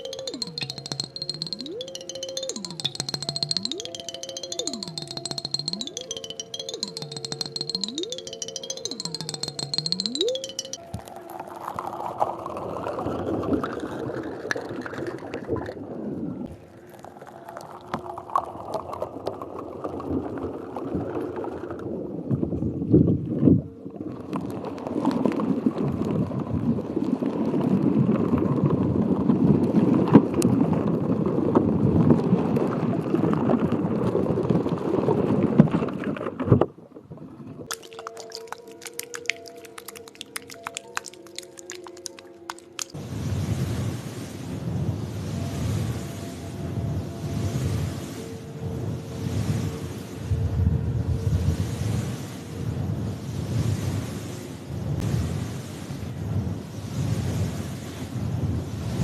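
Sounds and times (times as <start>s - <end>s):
water swishing in a container: 10.8s - 21.9s, 37.6s - 54.4s.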